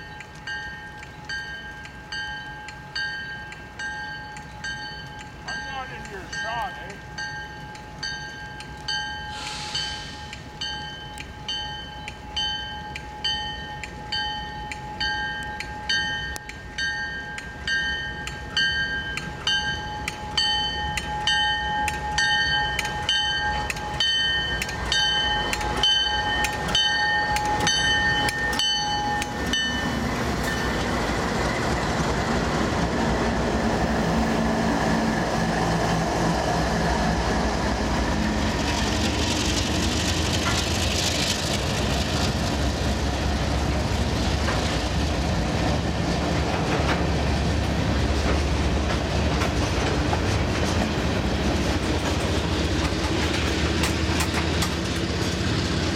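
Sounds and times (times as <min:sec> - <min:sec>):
railway bell ringing: 0:00.0 - 0:31.8
diesel locomotive engine rumble: 0:00.0 - 0:55.9.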